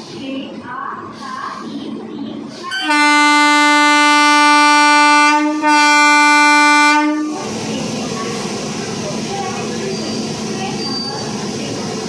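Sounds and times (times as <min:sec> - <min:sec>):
train horn blasts: 0:02.7 - 0:07.4.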